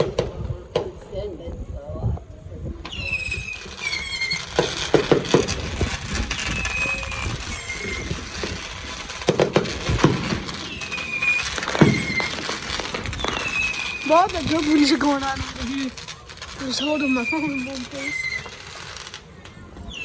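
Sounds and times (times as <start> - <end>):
distant fireworks bangs and crackles: 0.0 - 1.4, 2.7 - 20.0
high squealing tones: 2.9 - 9.3, 10.5 - 19.1.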